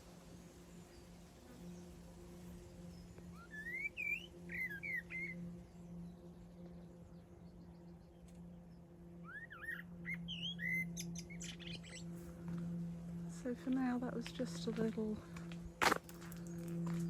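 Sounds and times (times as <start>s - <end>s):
faint low hum: 0.0s - 17.0s
blackbird singing: 2.7s - 8.2s, 9.2s - 12.2s.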